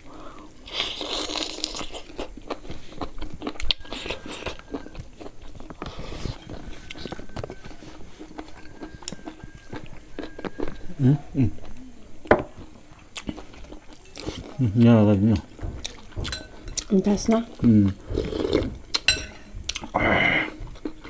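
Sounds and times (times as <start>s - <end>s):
wet chewing clicks and crunches: 0.8s - 10.9s, 13.1s - 19.1s.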